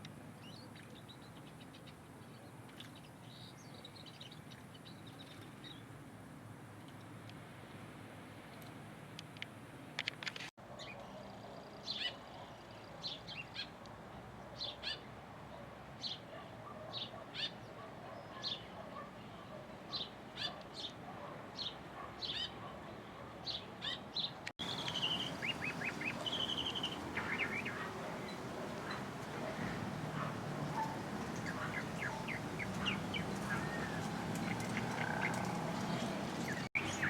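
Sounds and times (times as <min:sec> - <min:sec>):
birds chirping: 0:23.5 - 0:37.0
bird trilling calls: 0:24.6 - 0:37.0.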